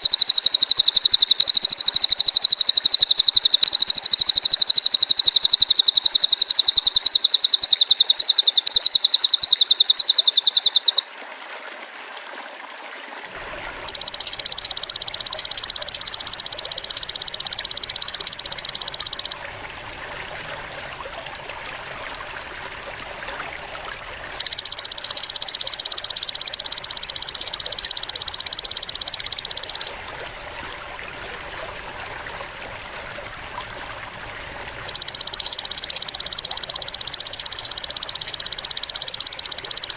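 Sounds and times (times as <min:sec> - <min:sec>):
fast pulsing insect trill: 0:00.0 - 0:11.0, 0:13.8 - 0:19.4, 0:24.4 - 0:29.9, 0:34.9 - 0:39.9.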